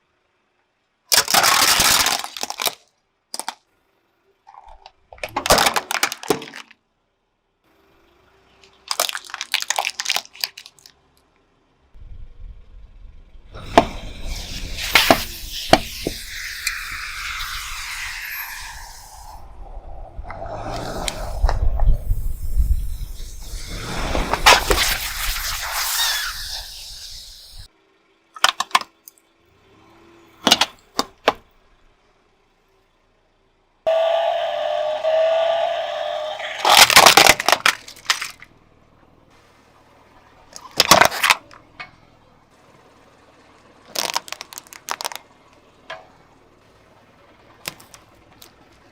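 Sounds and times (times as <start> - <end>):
loud cracks: 1.1 - 2.8, 5.2 - 6.7, 8.8 - 10.9, 20.2 - 27.7, 36.5 - 38.5, 43.9 - 45.2
crunchy object crackling under tyre: 1.1 - 3.6, 8.6 - 11.2, 13.5 - 27.7, 36.5 - 38.6, 40.4 - 41.7, 43.6 - 45.7
crunchy cracks under car tyre: 1.1 - 3.7, 4.7 - 6.8, 8.6 - 11.2, 36.5 - 38.6, 40.4 - 41.8, 43.6 - 45.7, 47.4 - 48.9
rolling car rumble: 7.7 - 28.2, 29.2 - 48.9.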